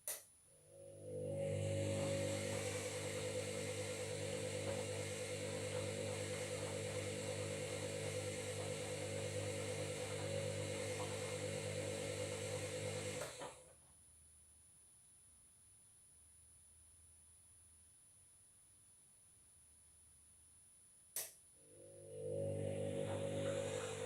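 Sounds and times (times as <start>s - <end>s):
washing machine buzzing hum: 0.5s - 13.7s, 21.6s - 24.0s.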